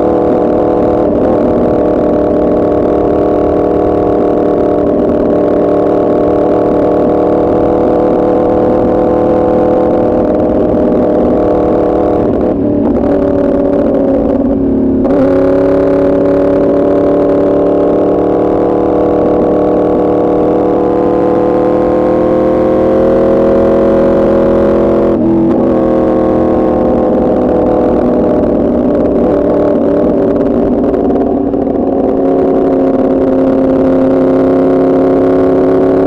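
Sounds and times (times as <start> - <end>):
motorcycle engine while riding: 0.0 - 36.0.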